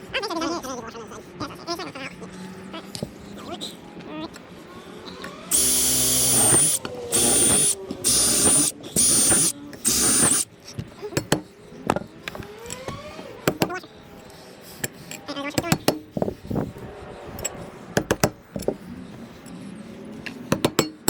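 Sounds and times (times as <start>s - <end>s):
cordless drill motor whine: 5.5s - 10.4s
metal parts clicking and knocking: 5.5s - 10.4s.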